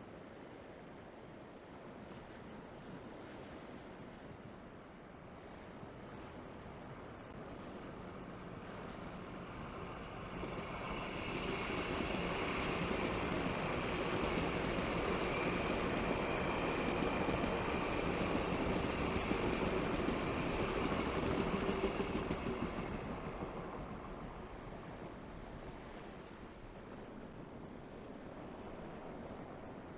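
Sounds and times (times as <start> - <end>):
electric train passing slowly: 0.0 - 29.9.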